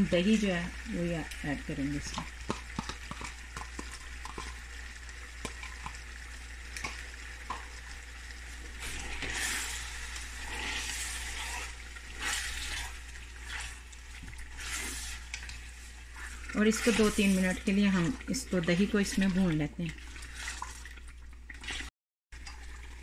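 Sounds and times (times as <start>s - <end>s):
chicken sizzling in a pan: 0.0s - 17.9s
spatula scraping a pan: 8.8s - 13.8s, 14.5s - 15.6s.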